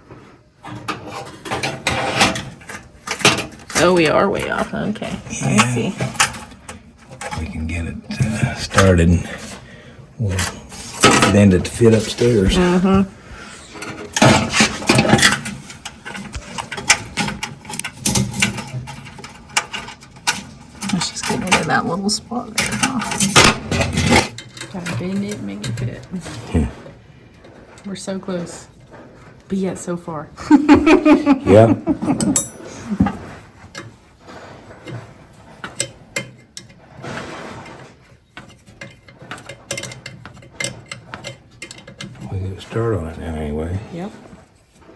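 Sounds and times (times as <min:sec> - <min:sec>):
metal scraping: 0:00.0 - 0:44.9
metal clicks and knocks: 0:00.6 - 0:04.9, 0:13.8 - 0:27.9, 0:32.2 - 0:42.4.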